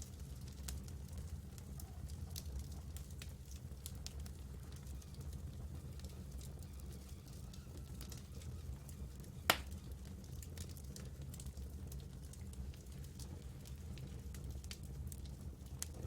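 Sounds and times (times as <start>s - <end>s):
campfire crackling: 0.0s - 16.0s
loud pop from burning wood: 9.5s - 9.8s.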